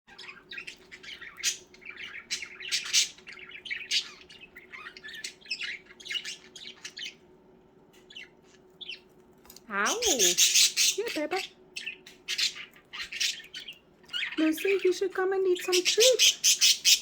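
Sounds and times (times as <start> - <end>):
budgerigars chirping and chattering: 0.1 - 7.2, 8.0 - 9.1, 9.7 - 17.0
budgerigar squawks: 15.8 - 17.0.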